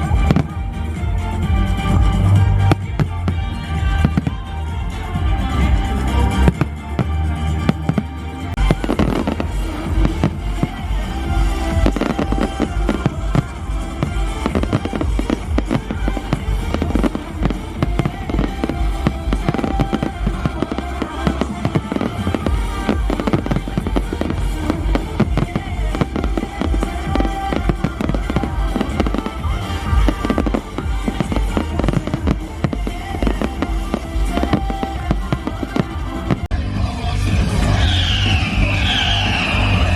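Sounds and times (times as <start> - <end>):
music playing: 0.0 - 39.9
firework bangs: 6.3 - 36.5.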